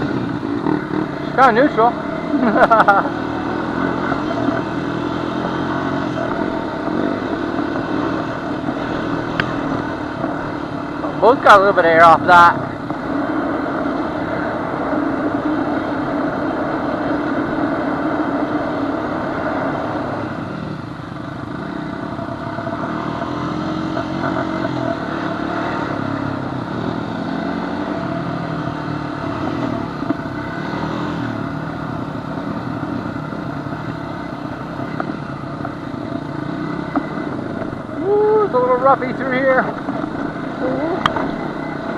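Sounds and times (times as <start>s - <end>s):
atv engine running: 0.0s - 41.9s.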